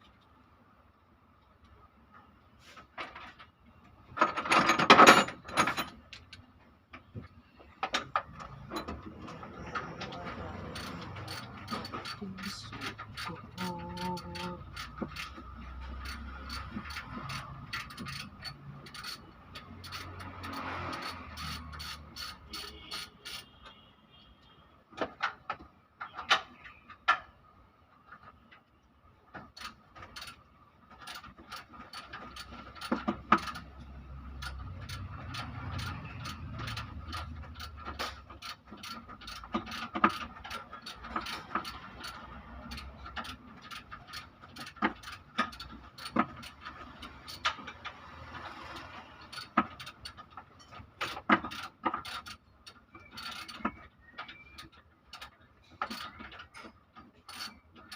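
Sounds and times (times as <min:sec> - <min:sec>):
metal tools clinking: 0:04.2 - 0:06.3
ratchet wrench clicking: 0:10.0 - 0:23.5, 0:29.5 - 0:30.4, 0:31.0 - 0:56.5, 0:57.2 - 0:57.6.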